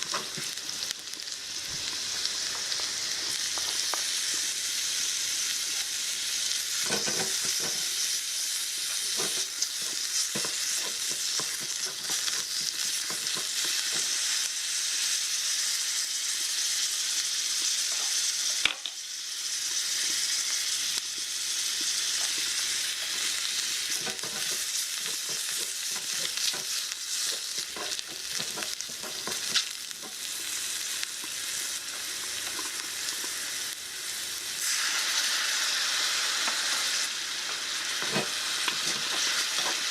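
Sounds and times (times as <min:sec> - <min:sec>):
food sizzling in a frying pan: 0:00.0 - 0:39.9
utensil scraping a pan: 0:06.8 - 0:08.0, 0:08.9 - 0:14.1, 0:23.9 - 0:30.2, 0:38.0 - 0:39.9.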